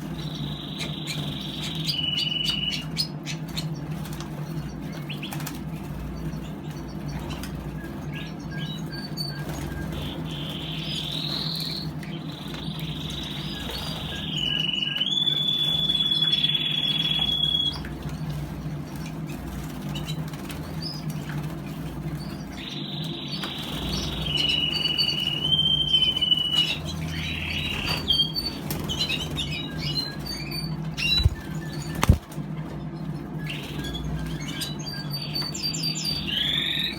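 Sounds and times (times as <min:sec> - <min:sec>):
wings fluttering: 0:00.0 - 0:16.1, 0:23.4 - 0:34.8
canary singing rolling trills: 0:00.0 - 0:36.9
steady low hum: 0:00.0 - 0:36.9
birds splashing in water: 0:31.0 - 0:32.4.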